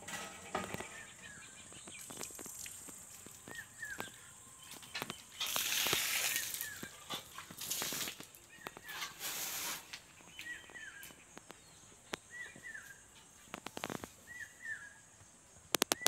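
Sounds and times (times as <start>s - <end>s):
small bird chirping: 0.1s - 16.0s
faint high insect buzz: 1.5s - 6.9s
loud rushing hiss: 9.2s - 9.9s.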